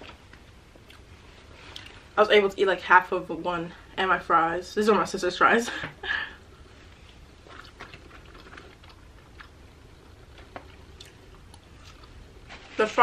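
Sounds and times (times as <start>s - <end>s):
faint chewing: 0.0s - 2.0s, 6.8s - 12.8s.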